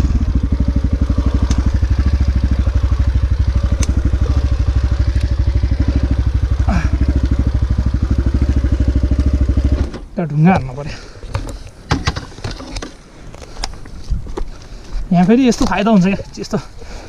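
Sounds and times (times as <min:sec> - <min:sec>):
dirt bike engine idling: 0:00.0 - 0:09.9
sharp clicks: 0:03.7 - 0:04.0.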